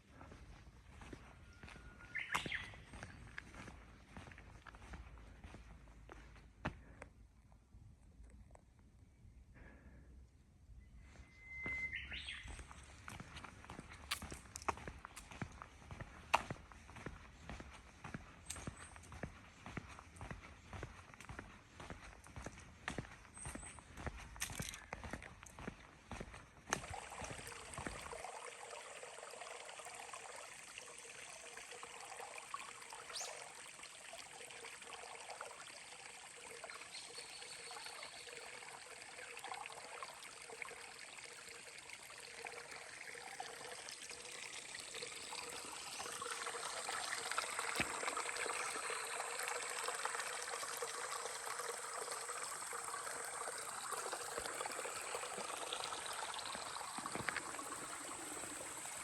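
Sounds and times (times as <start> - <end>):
stream rushing water: 26.7 - 30.4, 39.0 - 59.0.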